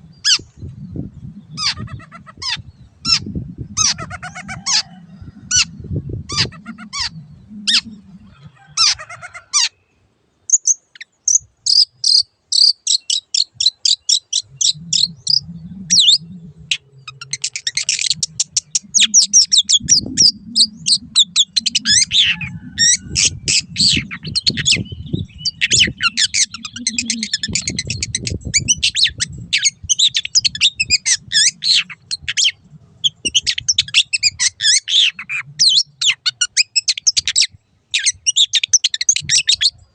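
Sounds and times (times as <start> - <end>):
bird singing: 0.0 - 39.9
low rumble: 14.4 - 28.6.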